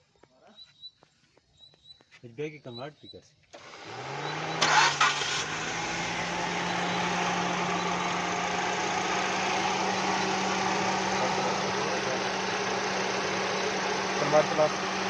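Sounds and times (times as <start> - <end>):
car engine idling: 3.6 - 15.0.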